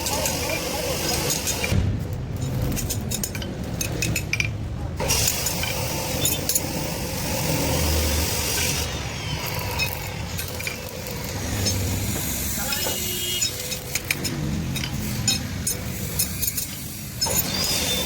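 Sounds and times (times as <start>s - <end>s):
arc welding crackle: 0.0s - 3.1s, 5.0s - 18.0s.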